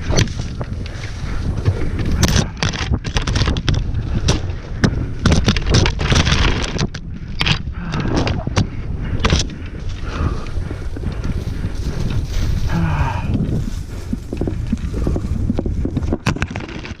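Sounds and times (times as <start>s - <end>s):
bike frame knocks and rattles: 0.0s - 10.0s, 14.2s - 17.0s
wind buffeting microphone: 0.0s - 17.0s.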